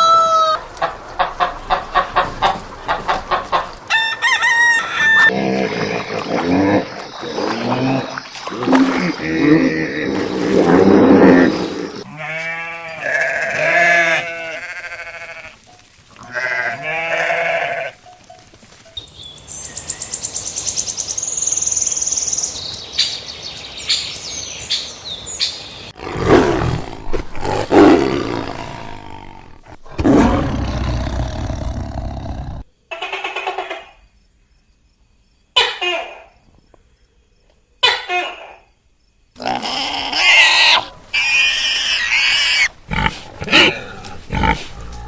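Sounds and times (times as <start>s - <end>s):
farm animal bleating: 12.0s - 18.0s
rough animal calls: 39.4s - 45.0s.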